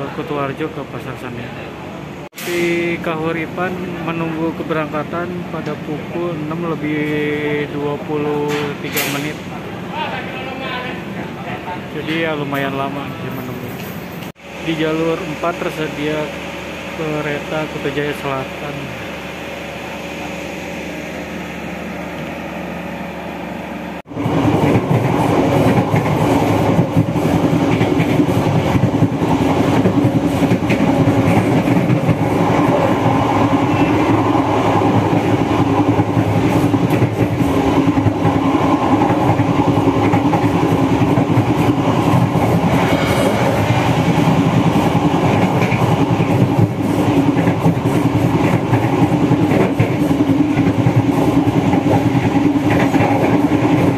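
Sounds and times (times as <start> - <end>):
train wheels rumbling and rattling: 2.3 - 9.8, 24.0 - 53.9
steady hum: 14.4 - 24.1, 26.9 - 47.4.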